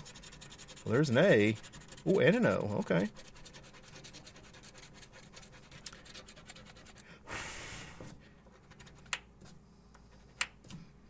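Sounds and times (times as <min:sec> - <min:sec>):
scratch-off ticket being scratched: 0:00.0 - 0:07.0
puff of breath: 0:07.0 - 0:08.4.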